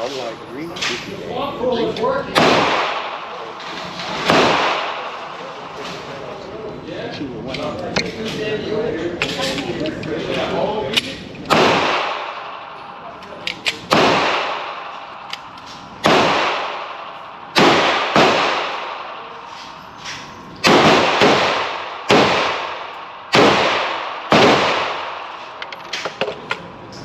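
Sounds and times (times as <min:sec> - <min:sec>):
echoing handgun shots: 0:02.3 - 0:05.3, 0:11.4 - 0:26.2.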